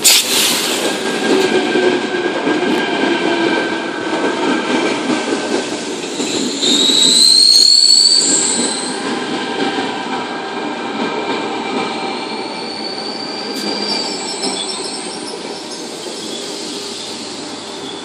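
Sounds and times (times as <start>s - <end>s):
electric train rumbling and whining: 0.0s - 18.0s
train brakes squealing: 5.2s - 9.3s, 11.8s - 18.0s.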